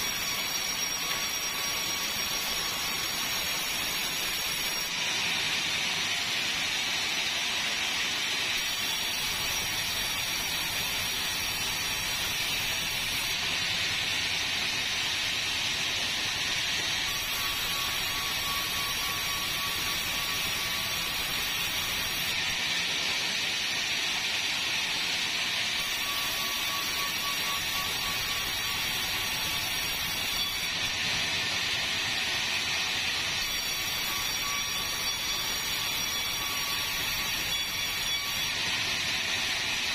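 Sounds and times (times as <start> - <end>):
thin high whine: 0.0 - 5.2, 17.0 - 22.6
sawmill machinery running: 0.0 - 39.9.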